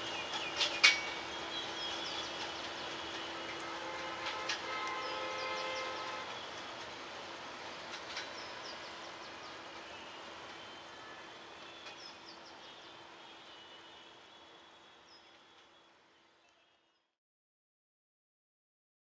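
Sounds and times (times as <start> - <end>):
train rolling along track: 0.0 - 16.4
train horn: 3.1 - 6.5.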